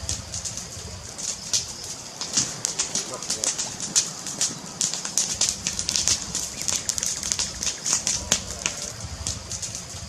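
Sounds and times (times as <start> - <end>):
burning wood popping: 0.0 - 10.0
flames rumbling: 0.0 - 10.0.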